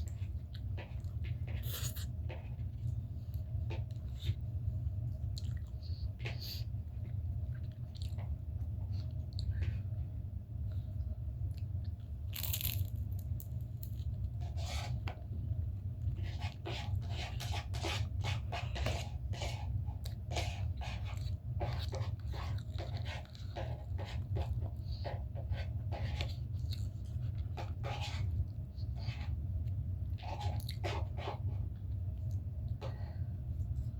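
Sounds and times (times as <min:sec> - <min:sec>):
steady low hum: 0:00.0 - 0:33.9
person chewing and mouth sounds: 0:05.3 - 0:05.8.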